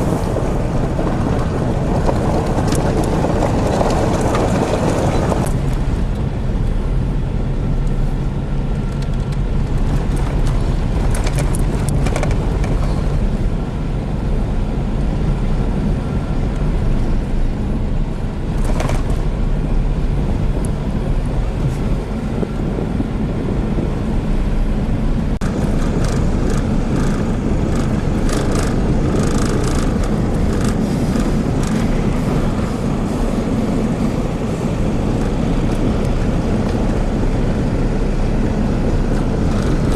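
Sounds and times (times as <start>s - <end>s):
car engine: 0.0s - 39.9s
road noise: 0.0s - 39.9s
short clicks and rattles: 25.4s - 31.9s.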